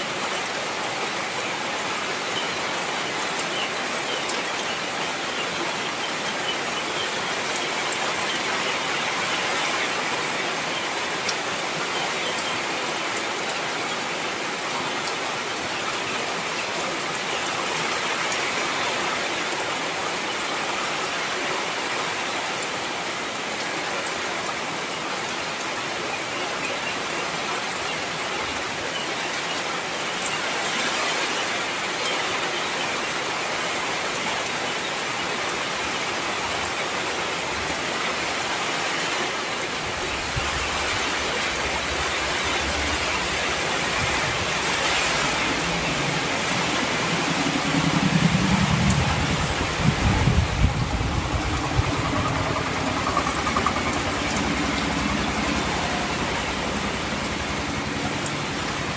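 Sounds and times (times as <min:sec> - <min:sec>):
heavy rain hissing: 0:33.0 - 0:58.9
raindrops ticking: 0:41.6 - 0:58.9.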